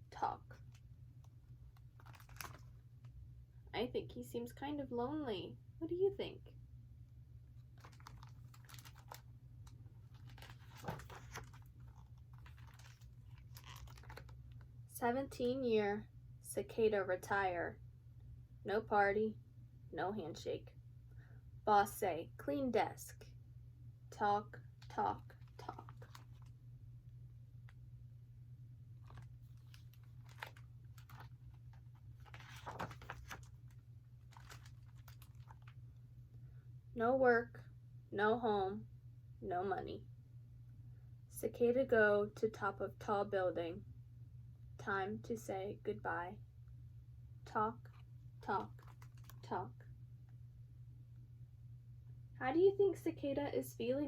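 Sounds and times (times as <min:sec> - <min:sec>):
low steady hum: 0:00.0 - 0:54.0
book page turning: 0:01.8 - 0:02.7, 0:07.8 - 0:14.4, 0:25.4 - 0:26.5, 0:29.0 - 0:35.8, 0:48.6 - 0:49.5
paper-like rustling and clicks: 0:01.8 - 0:02.8, 0:07.8 - 0:14.4, 0:25.4 - 0:26.5, 0:29.0 - 0:35.8, 0:48.6 - 0:49.5.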